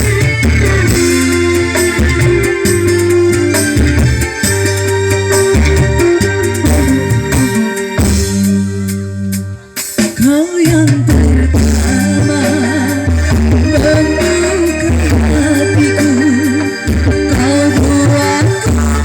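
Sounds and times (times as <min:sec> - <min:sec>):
electronic keyboard backing track: 0:00.0 - 0:19.0
person singing with vibrato: 0:10.1 - 0:19.0.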